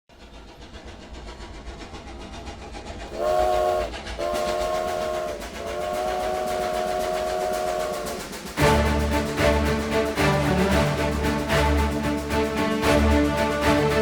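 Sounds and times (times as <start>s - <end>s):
train rumble and clatter: 0.1s - 14.0s
train whistle blasts: 3.1s - 9.2s.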